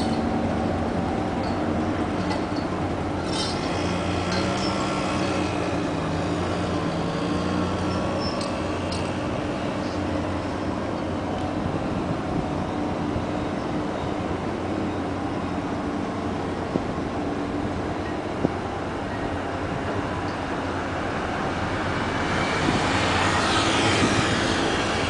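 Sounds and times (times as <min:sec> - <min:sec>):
ship engines droning: 0:00.0 - 0:25.0
light metallic clinks: 0:06.7 - 0:10.6.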